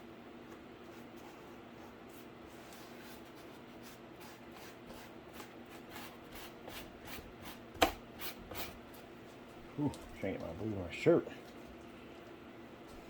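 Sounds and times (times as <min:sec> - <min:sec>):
faint steady hum: 0:00.0 - 0:13.0
paintbrush brushing on cardboard: 0:00.8 - 0:07.6.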